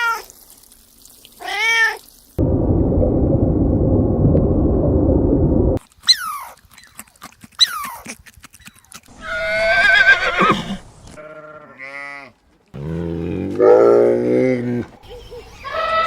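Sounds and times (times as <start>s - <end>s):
animal calls: 14.8s - 16.0s.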